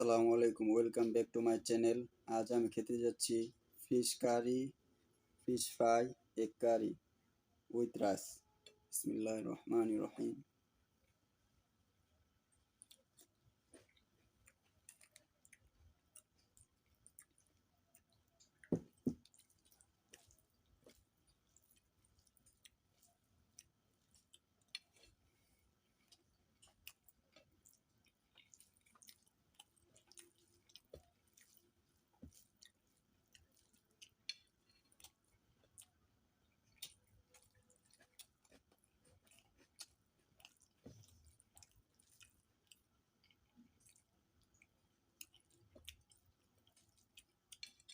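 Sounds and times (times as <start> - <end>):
wet chewing: 12.4 - 47.9.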